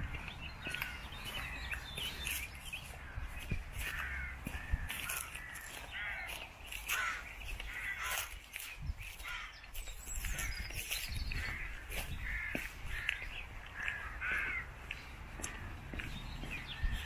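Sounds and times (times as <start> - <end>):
birds making harsh calls: 0.0 - 17.0.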